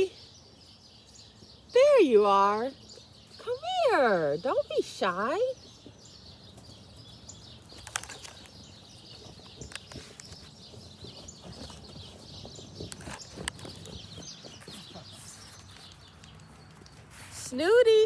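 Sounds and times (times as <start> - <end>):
distant birds twittering: 0.0 - 18.0
light clicks and rustles: 5.8 - 17.7.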